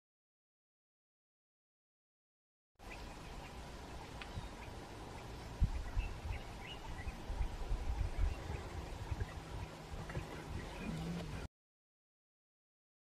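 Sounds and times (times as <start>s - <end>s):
faint bird calls: 2.8s - 11.5s
low rumbling background: 3.0s - 11.5s.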